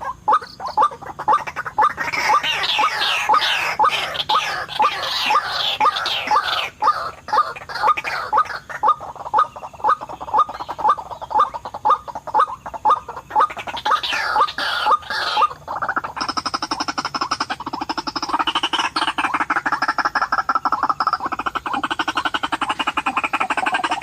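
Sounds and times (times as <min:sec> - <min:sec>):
waterhen calling: 0:00.0 - 0:24.0.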